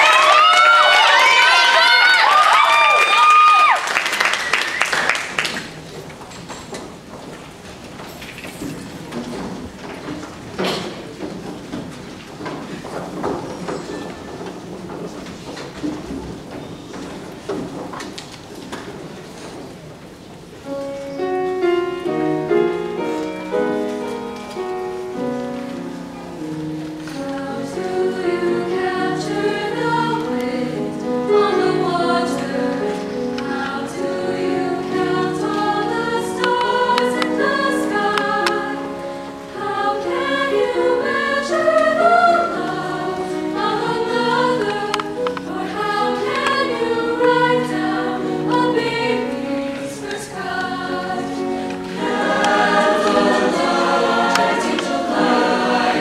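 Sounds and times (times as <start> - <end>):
choir singing in harmony: 21.2 - 56.0.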